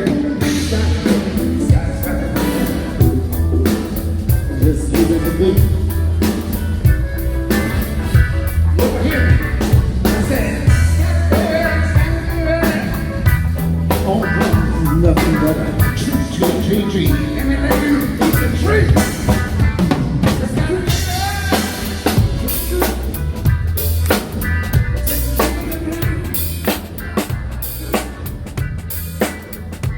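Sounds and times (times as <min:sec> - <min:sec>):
live band playing: 0:00.0 - 0:29.9.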